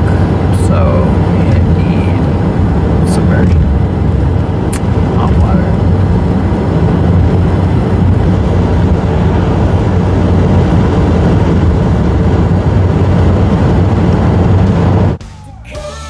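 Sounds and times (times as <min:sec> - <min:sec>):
car road and engine noise: 0:00.0 - 0:15.2.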